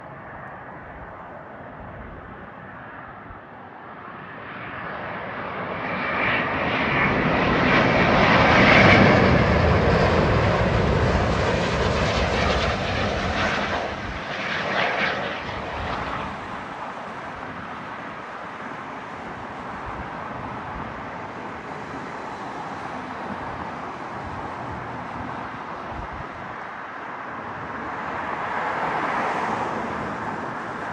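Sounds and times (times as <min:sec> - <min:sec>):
jet airliner landing: 0:00.0 - 0:30.9.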